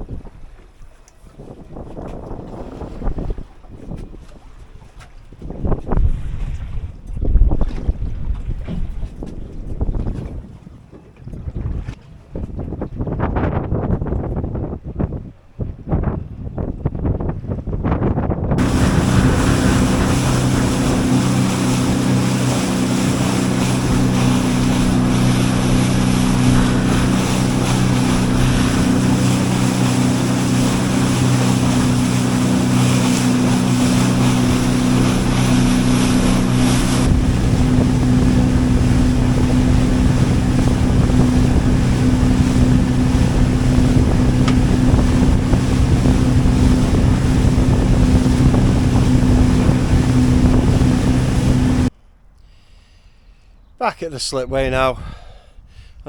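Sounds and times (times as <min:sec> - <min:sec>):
water noise: 0:00.0 - 0:17.8, 0:18.4 - 0:51.9
wind rumbling on microphone: 0:00.0 - 0:52.2
outboard motor running: 0:18.5 - 0:51.9.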